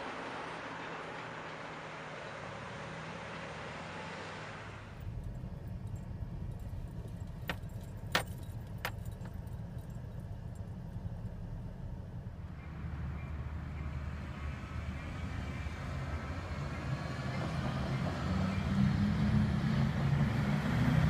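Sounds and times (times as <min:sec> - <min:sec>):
vehicle engine idling: 0:04.5 - 0:16.9.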